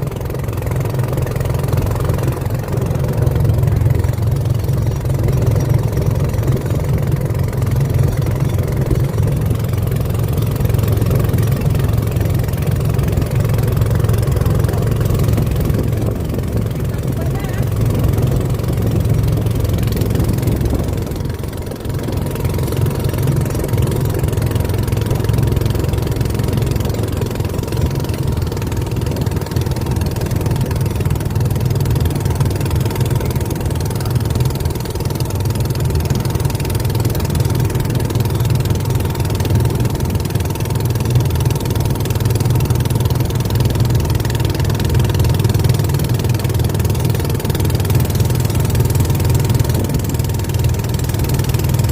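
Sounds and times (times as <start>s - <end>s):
boat engine droning: 0.0s - 51.9s.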